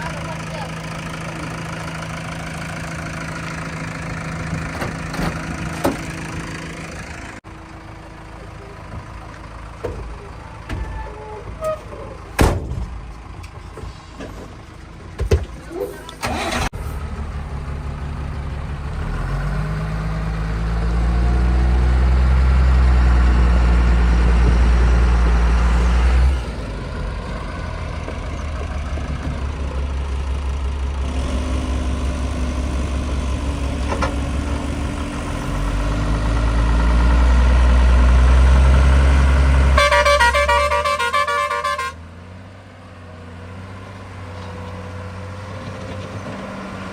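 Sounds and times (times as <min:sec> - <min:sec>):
heavy diesel engine revving: 0:16.2 - 0:42.4.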